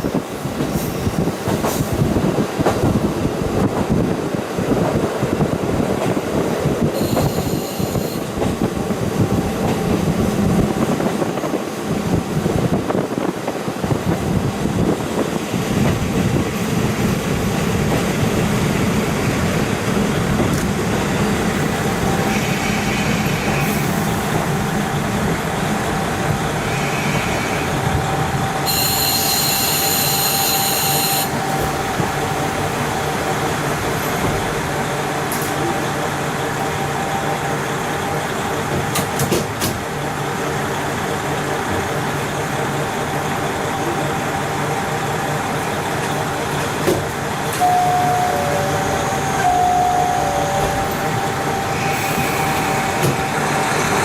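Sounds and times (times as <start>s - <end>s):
train wheels rumbling on rail: 0.0s - 54.0s
high-pitched wheel squeals: 28.7s - 31.4s.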